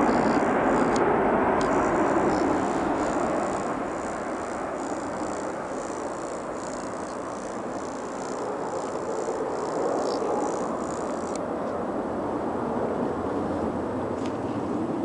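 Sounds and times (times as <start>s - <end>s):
jet engines rushing: 0.0s - 13.0s.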